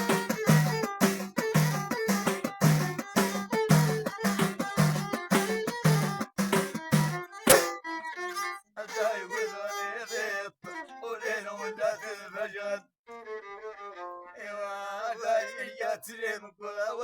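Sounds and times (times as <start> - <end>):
plucked string strums: 0.0 - 7.9
fiddle playing sliding melody: 0.0 - 12.2, 13.1 - 14.4.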